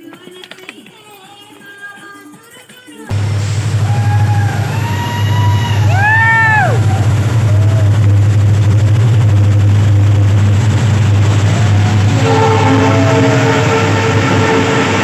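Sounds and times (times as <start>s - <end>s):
train horn: 3.1s - 15.0s
train rumbling: 3.1s - 15.0s.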